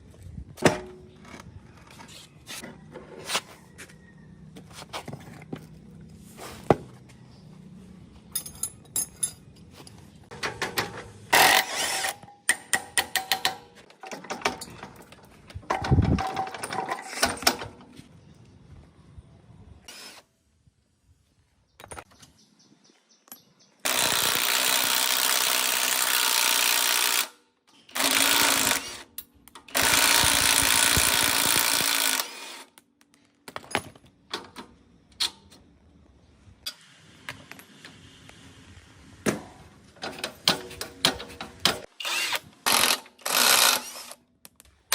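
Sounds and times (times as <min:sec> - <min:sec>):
metal clinks and knocks: 0:08.3 - 0:11.0
power tool running: 0:29.7 - 0:32.7.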